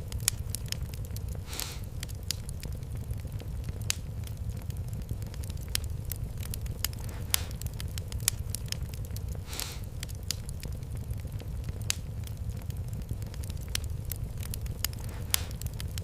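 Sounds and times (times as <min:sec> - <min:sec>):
wood fire crackling: 0:00.0 - 0:16.0
short hiss: 0:01.5 - 0:01.9, 0:09.5 - 0:09.9.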